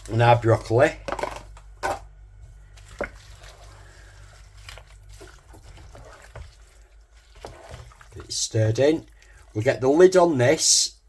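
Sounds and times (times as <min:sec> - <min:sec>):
vegetables squelching in sauce: 0:02.3 - 0:10.6.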